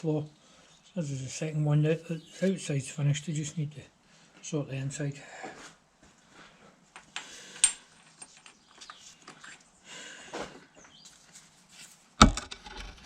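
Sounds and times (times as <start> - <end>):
metal parts scraping and rattling: 7.6 - 9.6.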